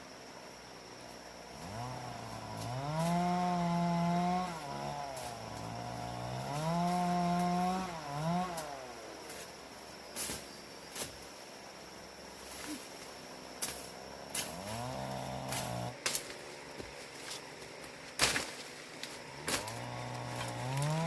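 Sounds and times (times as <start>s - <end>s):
small engine revving: 1.6s - 9.0s, 14.3s - 16.0s, 19.2s - 21.0s.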